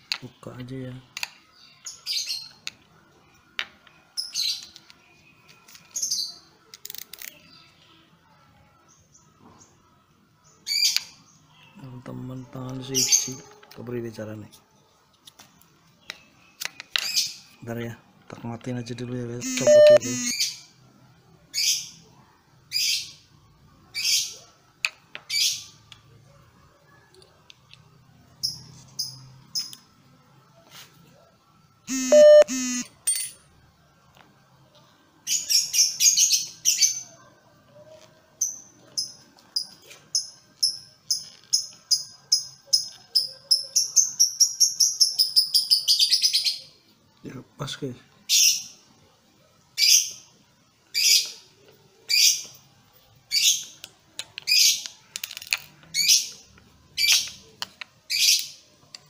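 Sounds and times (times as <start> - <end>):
birds chirping: 15.9 - 20.7, 31.8 - 32.8
high bird chirps: 19.4 - 20.6, 31.9 - 32.8
harsh scratchy bird calls: 19.4 - 20.7, 31.9 - 32.8, 54.4 - 55.2, 55.8 - 58.7.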